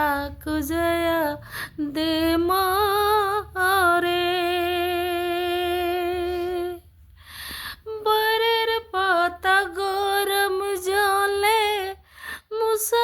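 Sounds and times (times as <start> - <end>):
woman singing: 0.0 - 6.9, 7.8 - 13.0
breath: 1.4 - 1.8, 7.1 - 7.9, 12.0 - 12.5.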